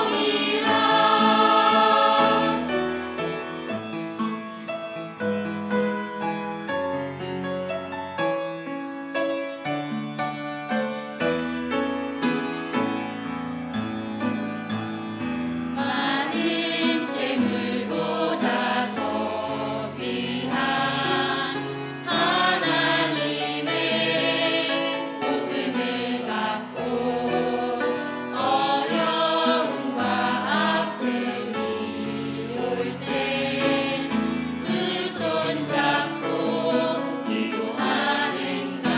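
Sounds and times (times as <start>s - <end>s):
voices singing with vibrato: 0.0s - 3.8s, 15.8s - 38.9s
piano accompaniment: 0.0s - 38.9s.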